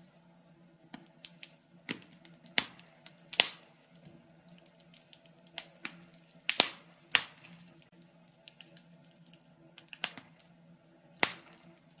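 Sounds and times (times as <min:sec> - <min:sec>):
wood fire crackling: 0:00.0 - 0:12.0
sharp pops from fire: 0:00.3 - 0:12.0.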